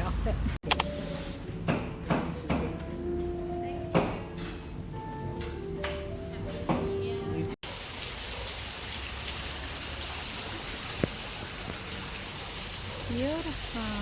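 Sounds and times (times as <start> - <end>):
sharp click: 0.6 - 1.0
music: 0.7 - 7.6
falling water hissing: 7.6 - 14.0.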